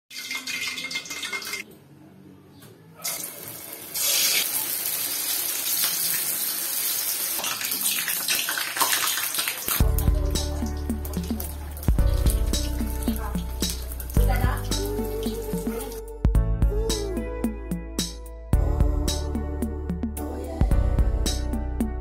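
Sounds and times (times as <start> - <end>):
food deep-frying in oil: 3.1 - 15.4
music with heavy bass beat: 9.8 - 22.0.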